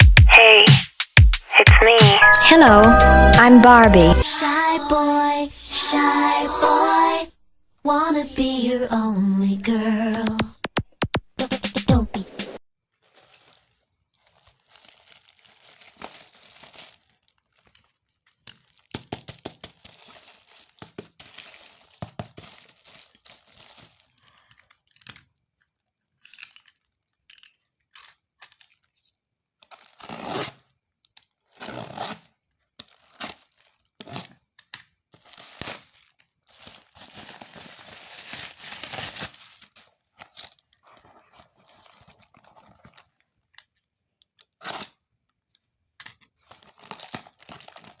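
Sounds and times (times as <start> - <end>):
packaging torn and crinkled: 12.9 - 48.0.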